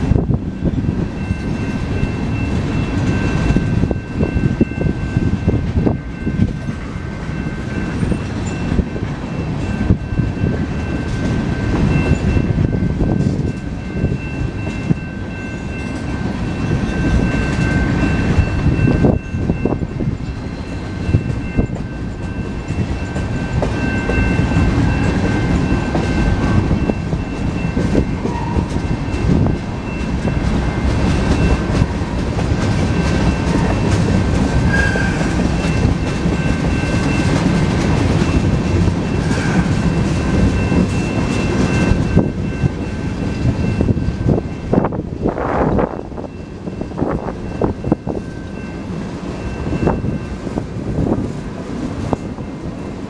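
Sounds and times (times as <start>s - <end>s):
train wheels rumbling on rails: 0.0s - 53.0s
high-pitched ringing: 0.6s - 32.2s.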